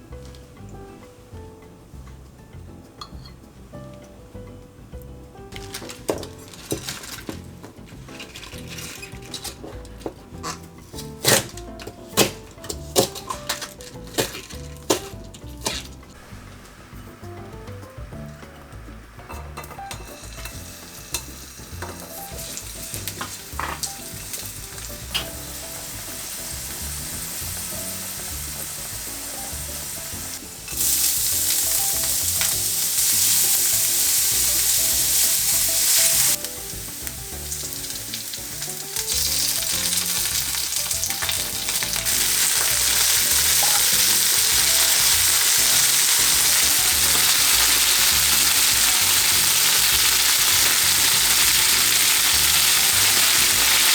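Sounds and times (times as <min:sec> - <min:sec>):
food sizzling in a frying pan: 0:05.3 - 0:53.9
utensil clicking on pan: 0:08.1 - 0:16.2, 0:19.3 - 0:26.8, 0:30.4 - 0:53.9.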